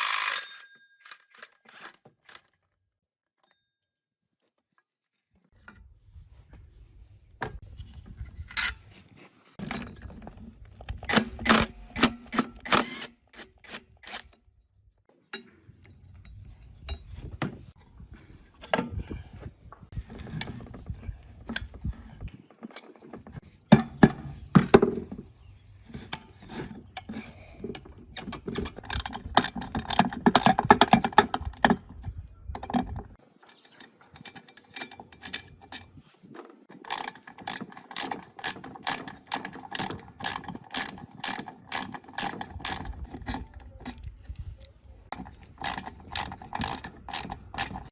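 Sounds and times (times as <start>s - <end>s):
rapid ratchet clicks: 0.0s - 0.5s, 36.8s - 43.4s, 45.1s - 47.9s.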